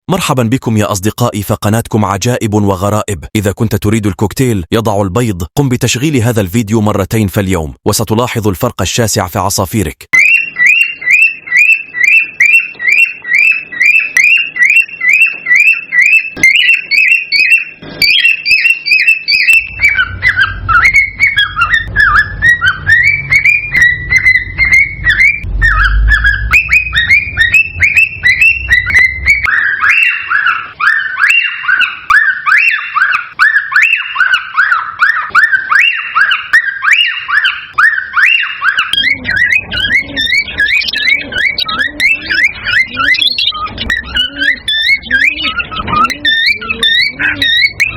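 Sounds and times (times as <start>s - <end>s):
cockatiels chirping and whistling: 10.2s - 47.9s
low rumble: 21.9s - 29.4s.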